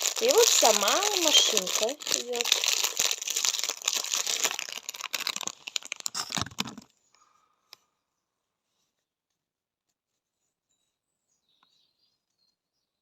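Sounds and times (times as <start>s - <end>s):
packaging crinkling: 0.0s - 6.9s.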